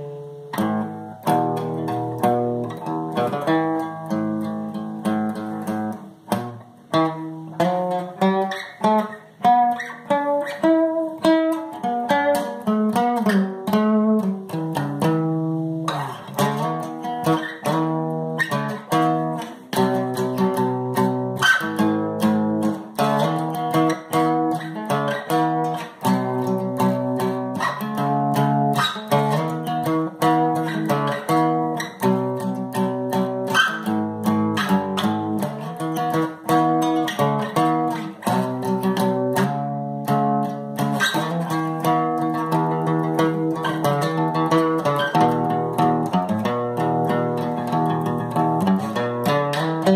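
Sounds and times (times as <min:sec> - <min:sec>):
guitar playing a tune: 0:00.0 - 0:49.9.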